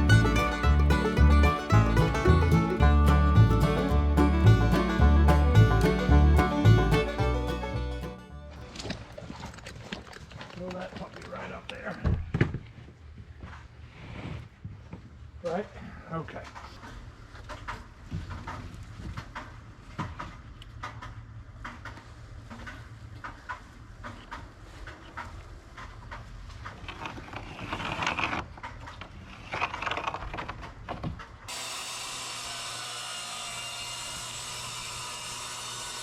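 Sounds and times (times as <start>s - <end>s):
wood scraping: 0.0s - 10.8s.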